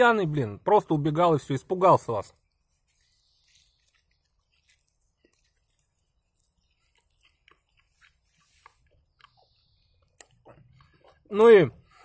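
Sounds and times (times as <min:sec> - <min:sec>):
faint chewing: 0:02.3 - 0:12.0
mouth clicks: 0:06.4 - 0:11.3.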